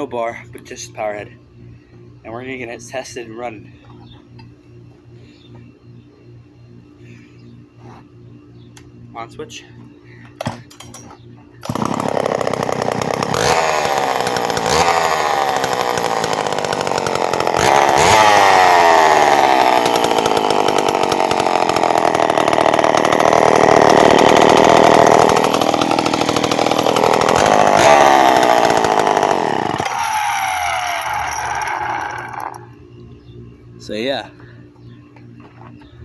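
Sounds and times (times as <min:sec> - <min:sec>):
chainsaw engine revving: 0:11.6 - 0:32.7.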